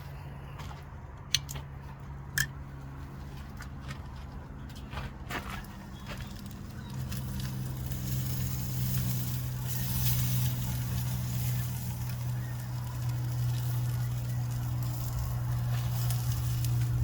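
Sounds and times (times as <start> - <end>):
steady low hum: 0.0 - 17.0
campfire crackling: 5.5 - 17.0.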